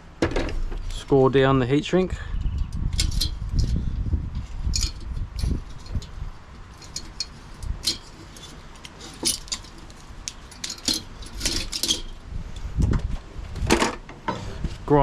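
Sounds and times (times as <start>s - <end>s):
light metallic clicks and clinks: 4.7s - 12.2s.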